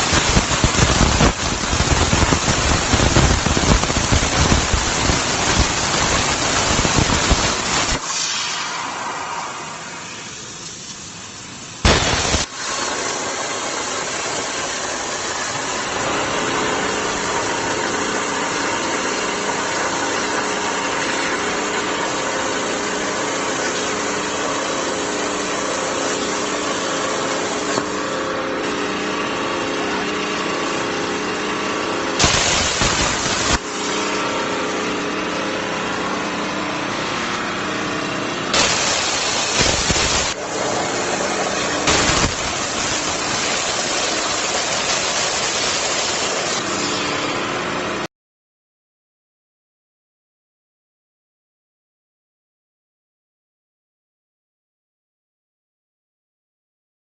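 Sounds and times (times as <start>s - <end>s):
torch blast: 0.0s - 10.5s, 11.8s - 28.9s, 32.1s - 34.4s, 38.5s - 47.0s
cutting torch hissing: 0.0s - 28.1s, 32.2s - 34.1s, 38.5s - 47.0s.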